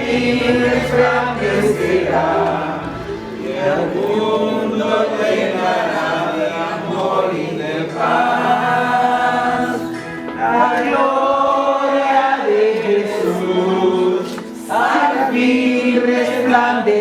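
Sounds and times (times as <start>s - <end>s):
group of voices chanting: 0.0s - 17.0s.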